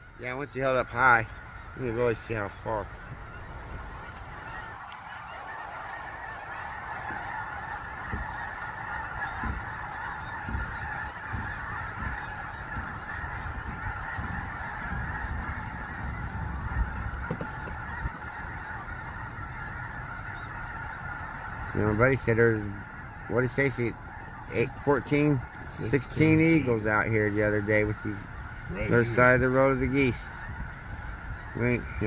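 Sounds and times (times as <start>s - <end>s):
geese honking: 0.0s - 32.0s
low thumps: 7.0s - 14.4s.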